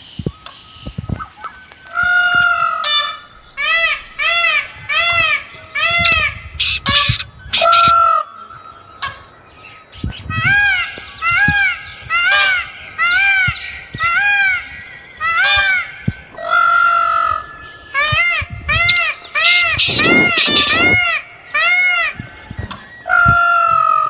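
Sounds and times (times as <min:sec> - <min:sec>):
bird nasal calls: 0:01.9 - 0:08.3, 0:10.1 - 0:24.0
bird harsh squawk: 0:02.0 - 0:08.3, 0:10.4 - 0:22.2.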